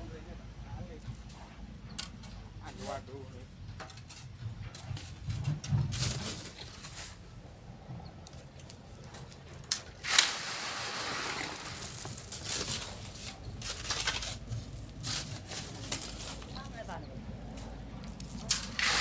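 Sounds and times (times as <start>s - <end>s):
sand scraping and clicking: 3.9s - 7.4s, 8.2s - 19.0s
sand pouring: 10.0s - 16.4s, 18.2s - 19.0s.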